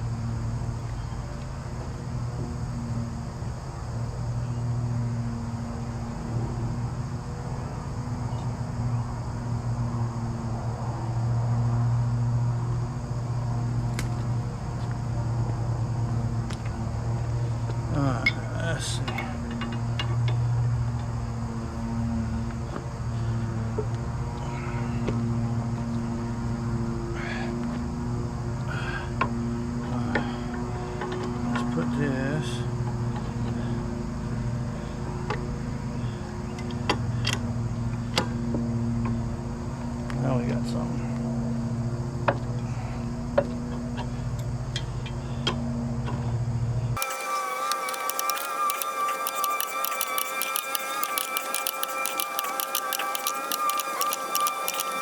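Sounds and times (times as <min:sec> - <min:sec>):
sharp click: 0:47.0 - 0:55.0.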